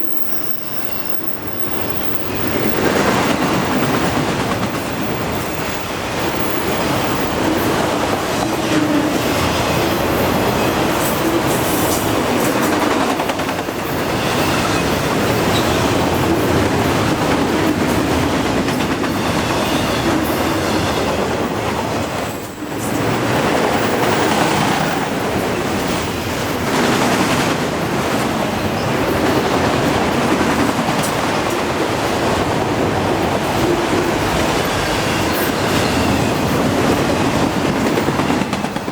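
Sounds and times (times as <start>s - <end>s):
freight train rumbling past: 0.0s - 38.9s.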